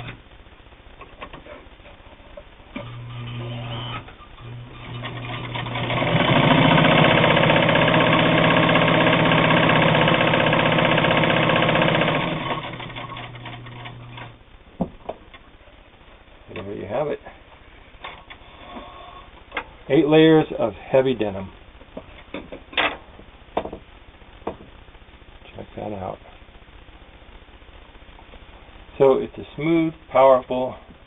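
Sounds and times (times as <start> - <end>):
sewing machine stitching: 2.8 - 14.4.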